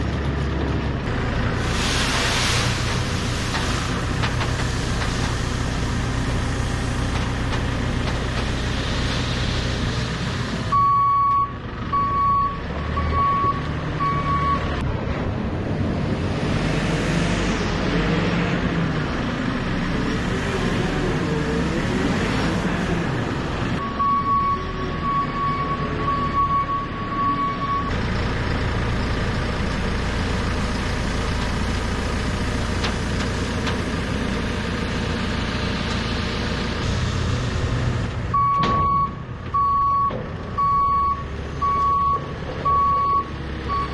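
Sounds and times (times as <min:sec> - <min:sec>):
heavy vehicle engine running: 0:00.0 - 0:43.9
reversing alarm beeps: 0:10.7 - 0:14.7, 0:23.8 - 0:27.9, 0:38.4 - 0:43.9.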